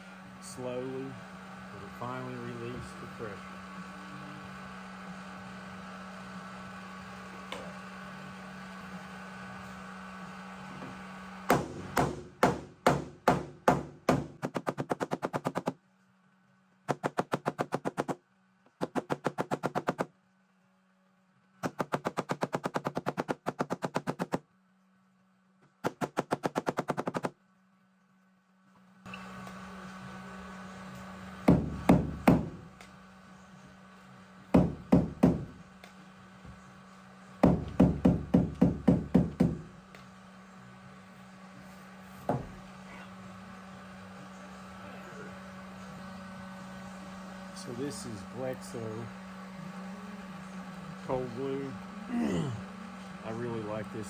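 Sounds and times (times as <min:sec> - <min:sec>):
steady low hum: 0:00.0 - 0:54.0
sharp rapid taps: 0:11.5 - 0:15.8, 0:16.9 - 0:18.2, 0:18.8 - 0:20.1, 0:21.6 - 0:24.4.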